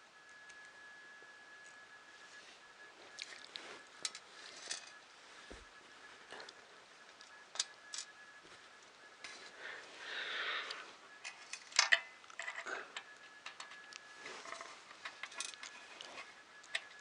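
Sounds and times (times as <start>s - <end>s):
soft rustle: 1.7s - 11.5s, 13.8s - 17.0s.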